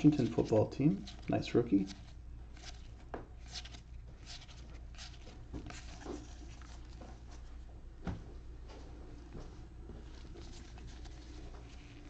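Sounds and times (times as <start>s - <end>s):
faint steady hum: 0.0s - 12.0s
cards clicking and rustling: 0.3s - 7.1s.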